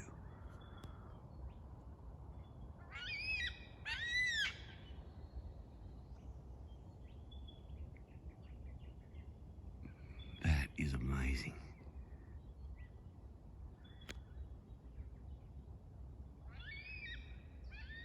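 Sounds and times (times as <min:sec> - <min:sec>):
cockatoo calling: 0:02.9 - 0:04.6.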